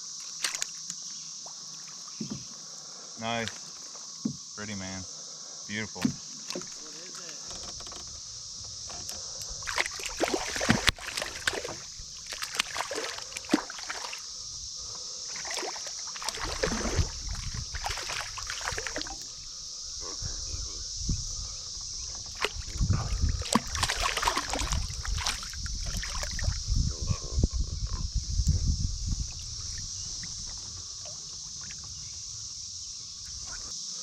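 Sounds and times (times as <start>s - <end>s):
steady high hiss: 0.0s - 22.7s, 28.1s - 34.0s
water splashing and sloshing: 0.2s - 4.6s, 5.9s - 19.4s, 22.0s - 26.6s, 29.1s - 32.0s.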